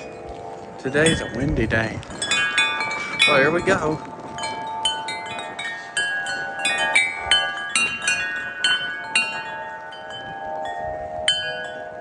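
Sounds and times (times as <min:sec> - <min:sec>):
wind chimes ringing: 0:00.0 - 0:12.0.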